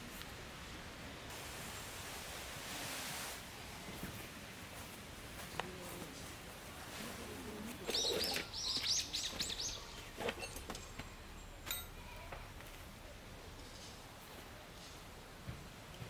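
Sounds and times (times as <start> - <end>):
bird chirping: 7.9 - 11.6.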